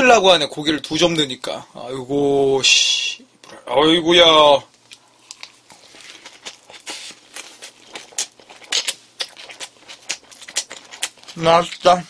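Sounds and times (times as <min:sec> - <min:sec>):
mouth chewing wet clicks: 0:04.7 - 0:11.8.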